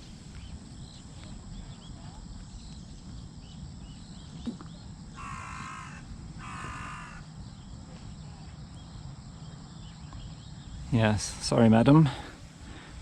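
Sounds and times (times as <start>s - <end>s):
crow cawing: 5.2s - 7.3s.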